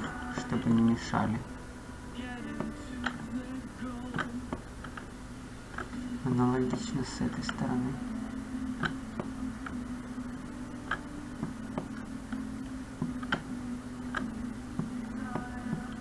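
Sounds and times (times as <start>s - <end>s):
low electrical hum: 0.0s - 16.0s
computer mouse clicking: 5.7s - 6.0s, 8.8s - 9.8s, 10.8s - 12.4s, 13.0s - 13.5s, 14.1s - 16.0s.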